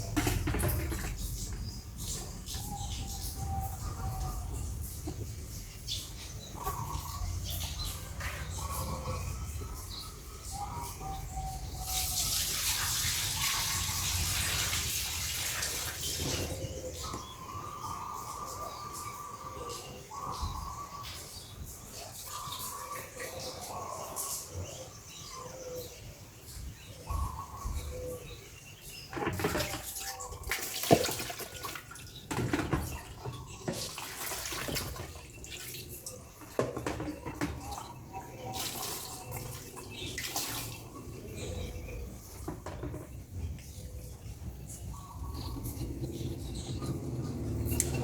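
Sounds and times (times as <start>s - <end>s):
water splashing and running: 11.6s - 16.8s, 29.1s - 42.6s.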